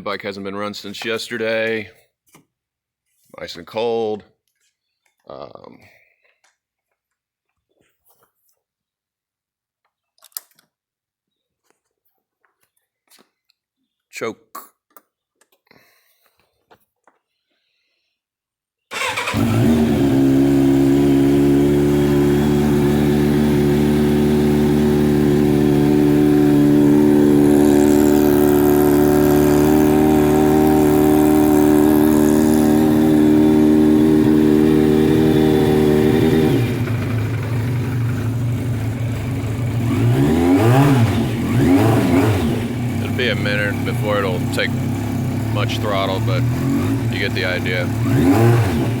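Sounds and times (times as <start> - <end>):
motorcycle engine starting and idling: 18.9 - 49.0.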